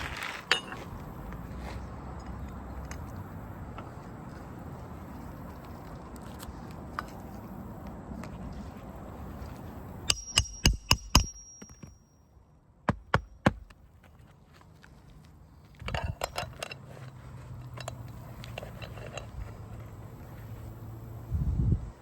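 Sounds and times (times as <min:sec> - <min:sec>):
hammer striking roofing nails: 0:10.1 - 0:12.0, 0:12.9 - 0:13.8.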